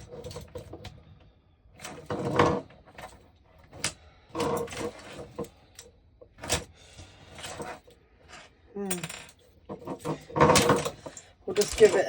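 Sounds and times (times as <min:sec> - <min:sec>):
christmas lights rustling and clattering: 0:07.2 - 0:12.0.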